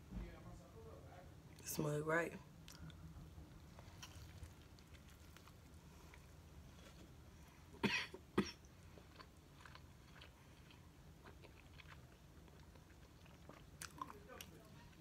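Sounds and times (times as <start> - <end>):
chewing crispy sandwich: 2.6 - 7.8, 8.6 - 15.0.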